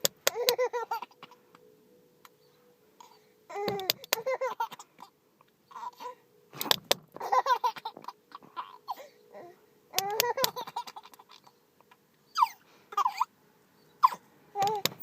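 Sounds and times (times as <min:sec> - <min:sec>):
baby laughing: 0:00.2 - 0:01.4, 0:03.0 - 0:05.1, 0:05.7 - 0:06.2, 0:07.2 - 0:11.6, 0:12.4 - 0:13.3, 0:14.0 - 0:15.0.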